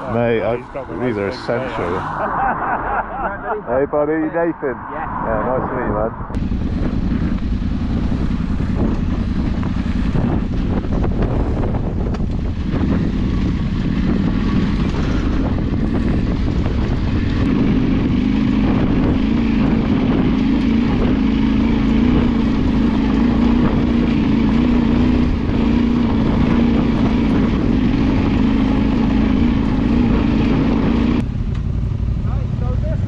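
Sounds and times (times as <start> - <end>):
wind on microphone: 4.8 - 31.3
vehicle engine running: 5.8 - 33.0.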